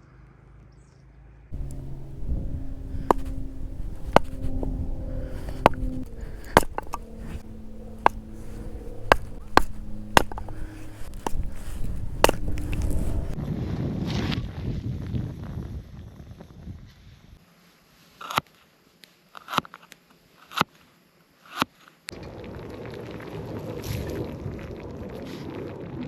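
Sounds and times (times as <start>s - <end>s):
low background rumble: 1.6s - 13.4s
sharp chopping strikes: 1.6s - 13.4s.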